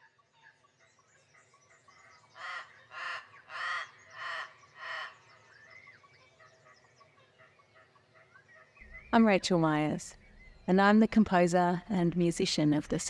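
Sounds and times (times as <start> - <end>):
faint chirping of small birds: 0.0 - 13.0
bird calling loudly: 2.4 - 5.9.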